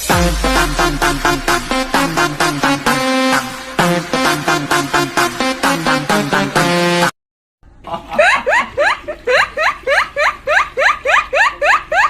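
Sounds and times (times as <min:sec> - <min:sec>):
electronic dance music: 0:00.0 - 0:07.1.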